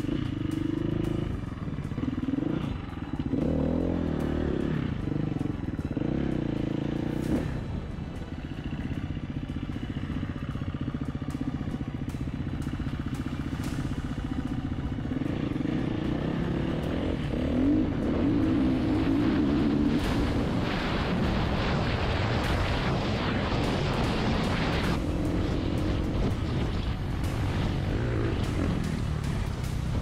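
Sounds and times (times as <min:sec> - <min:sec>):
dirt bike engine revving: 0:00.0 - 0:30.0
wind rush: 0:17.8 - 0:30.0.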